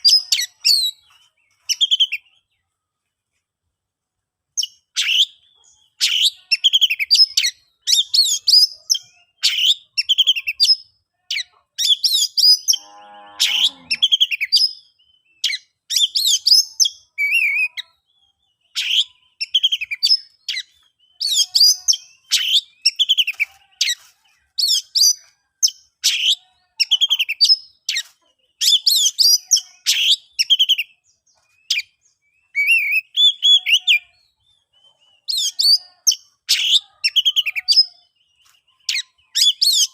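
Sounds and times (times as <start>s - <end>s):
bird singing whistled phrases: 31.7s - 34.2s.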